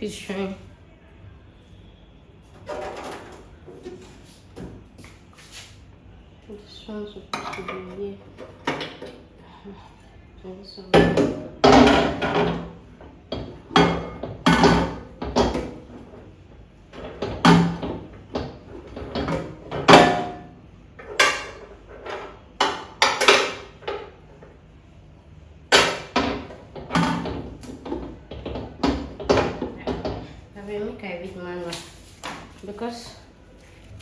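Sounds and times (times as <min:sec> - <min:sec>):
clunks and knocks of microwave parts: 0:07.4 - 0:09.3, 0:10.9 - 0:16.2, 0:16.9 - 0:24.6, 0:25.7 - 0:30.4.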